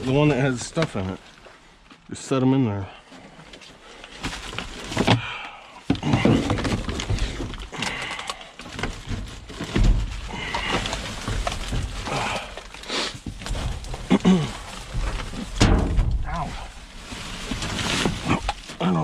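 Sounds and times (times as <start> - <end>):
trash bags rustling: 0.0 - 2.0, 5.9 - 19.0
items knocking and clunking: 3.5 - 18.8.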